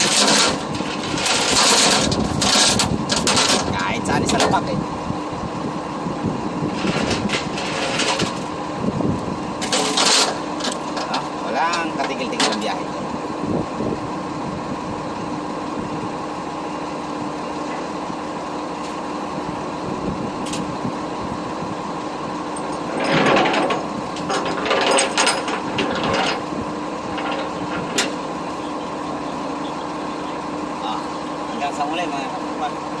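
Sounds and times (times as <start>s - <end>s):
loose rattling and clatter: 0.0s - 4.6s, 6.8s - 8.6s, 9.6s - 12.8s, 22.6s - 26.5s
truck engine drone in cab: 0.0s - 33.0s.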